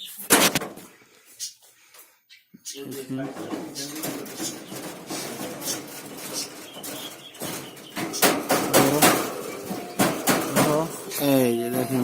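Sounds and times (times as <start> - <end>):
turkeys calling: 0.0 - 12.0
faint knocks: 3.3 - 11.2.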